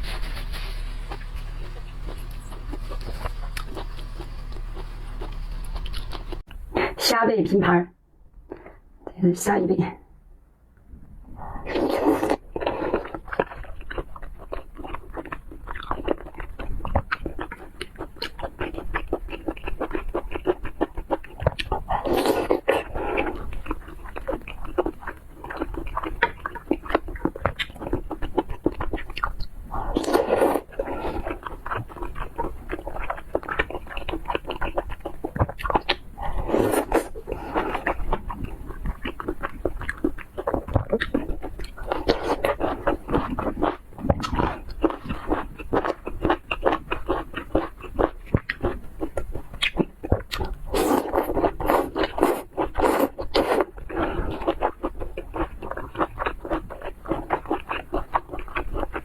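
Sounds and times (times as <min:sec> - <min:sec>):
wet chewing and smacking: 0:00.0 - 0:07.0, 0:11.7 - 0:59.0
loud slurps: 0:36.2 - 0:38.2.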